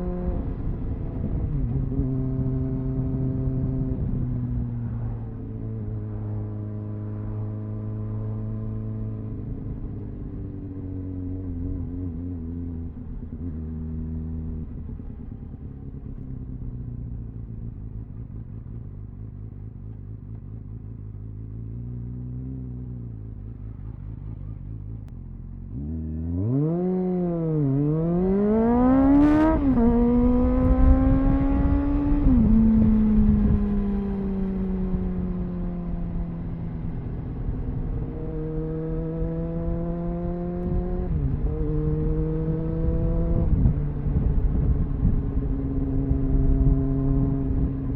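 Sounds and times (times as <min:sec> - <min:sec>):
motorcycle engine revving: 0:00.0 - 0:47.9
wind noise: 0:28.2 - 0:47.9.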